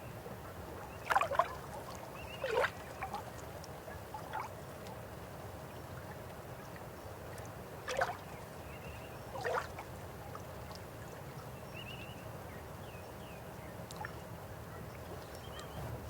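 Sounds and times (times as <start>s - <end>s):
river water flowing: 0.1s - 16.0s
water splashes: 0.6s - 8.6s, 9.3s - 11.4s.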